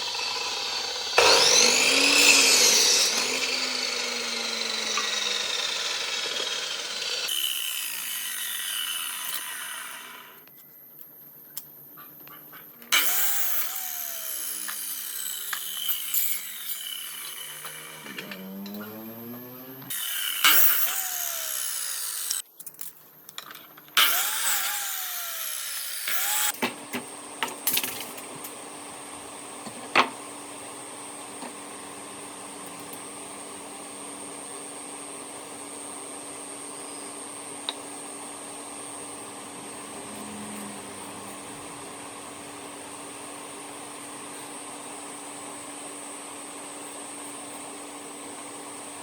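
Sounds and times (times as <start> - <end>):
electric power tool motor: 0.0 - 10.4, 12.9 - 22.4, 24.0 - 26.6, 39.2 - 42.7.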